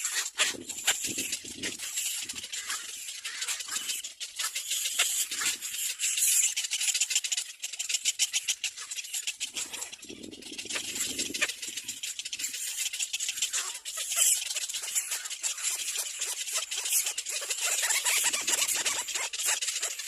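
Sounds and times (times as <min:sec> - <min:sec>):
low rough bird sound: 0:00.0 - 0:20.0
nestlings clicking begging chatter: 0:00.0 - 0:20.0.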